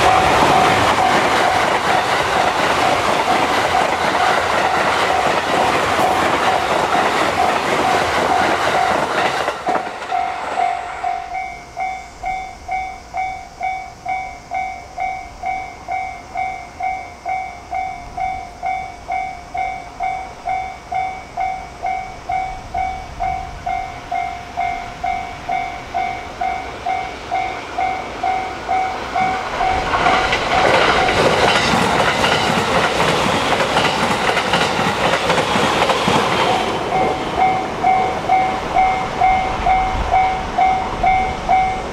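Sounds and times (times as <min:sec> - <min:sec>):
level crossing bell ringing: 0:00.0 - 0:01.7, 0:10.1 - 0:31.3, 0:36.8 - 0:41.9
train wheels clattering: 0:00.0 - 0:41.9.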